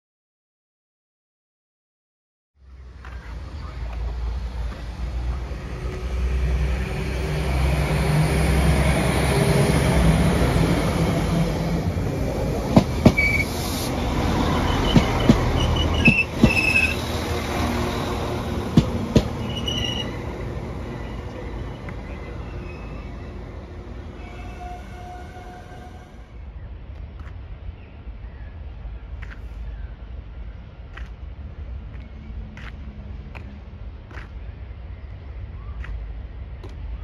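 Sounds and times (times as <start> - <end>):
train rumble: 2.6 - 37.0
wheels clacking over rail joints: 11.8 - 23.4
high wheel squeals: 13.1 - 13.7, 14.5 - 17.1, 19.3 - 20.3, 24.2 - 26.0.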